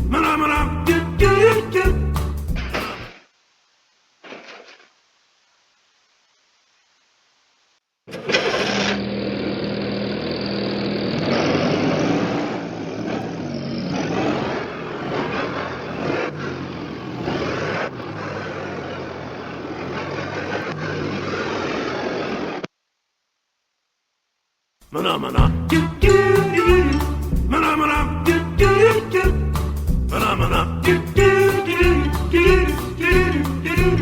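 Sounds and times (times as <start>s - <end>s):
car engine running: 8.5s - 22.1s.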